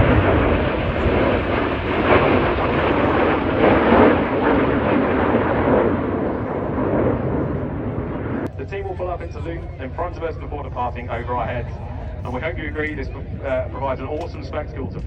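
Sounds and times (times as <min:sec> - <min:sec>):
jets passing overhead: 0:00.0 - 0:15.0.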